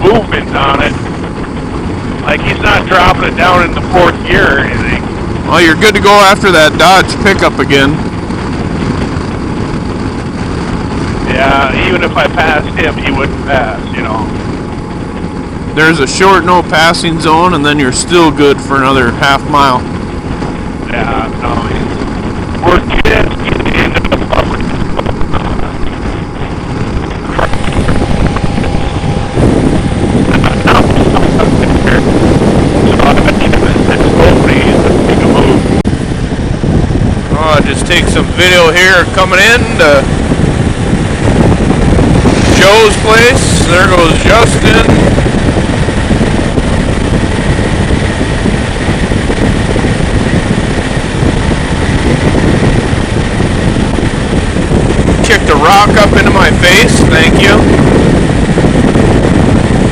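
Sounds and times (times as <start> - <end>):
motorcycle engine and road noise: 0.0 - 59.9
wind rushing over microphone: 0.0 - 59.9.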